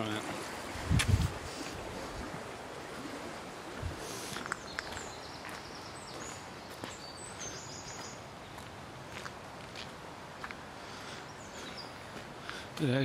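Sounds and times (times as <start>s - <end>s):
outdoor background hiss: 0.0s - 13.0s
small birds chirping: 3.7s - 9.9s, 10.8s - 13.0s.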